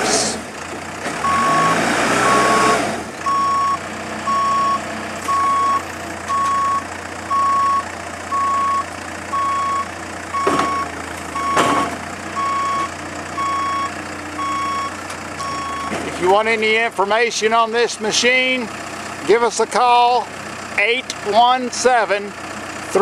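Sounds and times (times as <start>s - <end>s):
diesel engine running: 0.0s - 23.0s
reversing alarm beeping: 1.2s - 16.0s.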